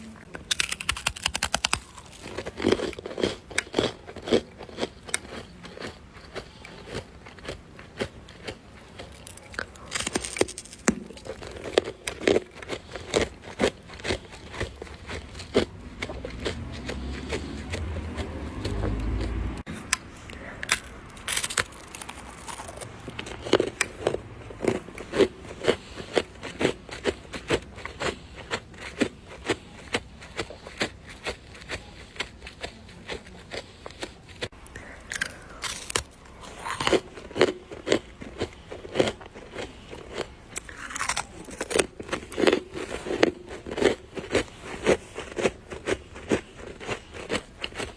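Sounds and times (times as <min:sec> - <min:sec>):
frost crunching and scraping: 0:00.0 - 0:47.9.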